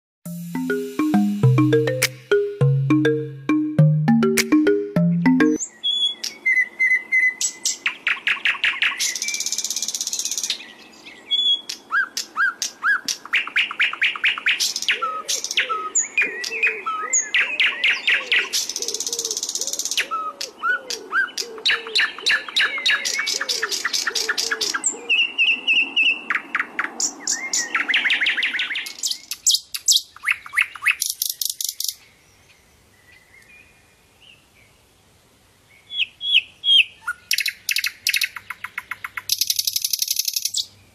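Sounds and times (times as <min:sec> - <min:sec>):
flycatcher song with trills: 0:00.3 - 0:05.6.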